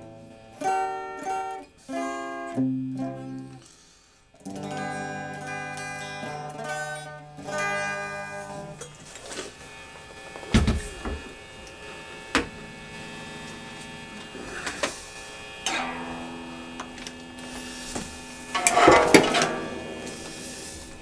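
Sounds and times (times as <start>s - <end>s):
plucked string notes: 0.0s - 3.6s, 4.4s - 9.0s, 15.6s - 21.0s
steady hum: 2.6s - 3.6s, 9.8s - 21.0s.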